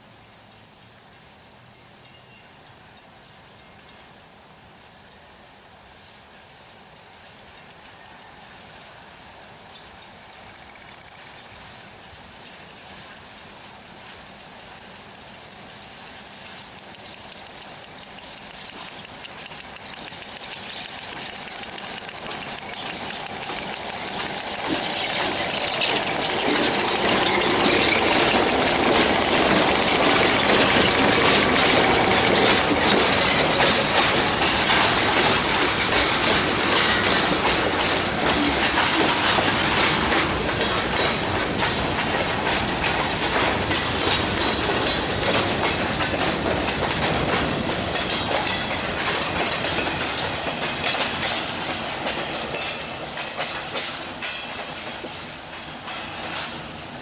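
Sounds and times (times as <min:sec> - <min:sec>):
freight train wheels clicking: 0:06.0 - 0:57.0.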